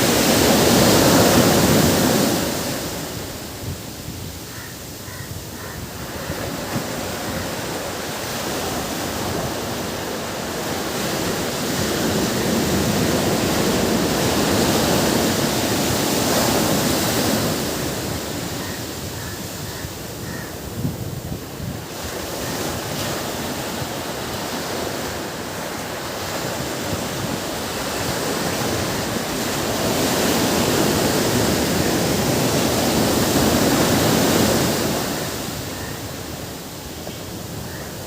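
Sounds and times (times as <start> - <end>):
ocean waves washing: 0.0 - 38.0.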